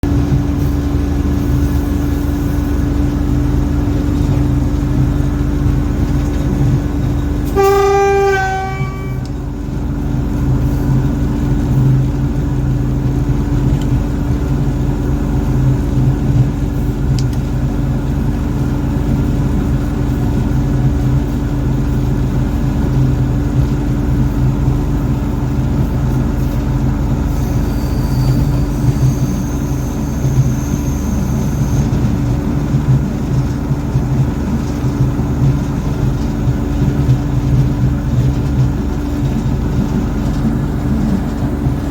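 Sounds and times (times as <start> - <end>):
diesel locomotive engine drone: 0.0 - 41.9
train horn blast: 7.2 - 9.6, 27.2 - 32.3.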